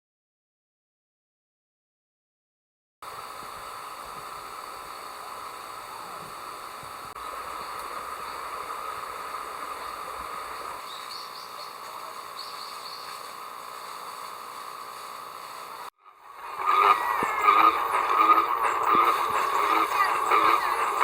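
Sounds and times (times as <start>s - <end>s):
crickets and insects trilling: 3.1s - 21.0s
high insect chirps: 4.4s - 21.0s.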